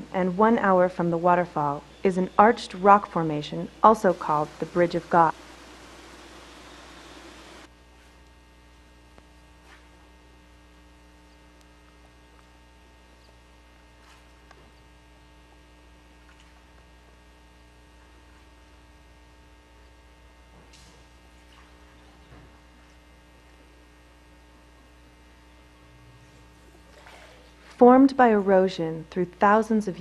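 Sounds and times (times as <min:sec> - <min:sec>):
faint electrical hum: 0:00.0 - 0:30.0.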